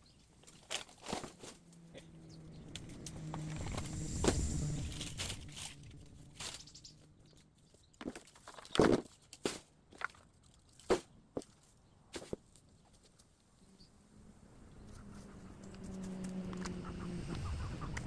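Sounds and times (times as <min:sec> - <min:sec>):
footsteps on dry bamboo litter: 0:00.4 - 0:13.2
low rumbling: 0:01.6 - 0:07.7
canes snapping and rustling: 0:08.0 - 0:12.5.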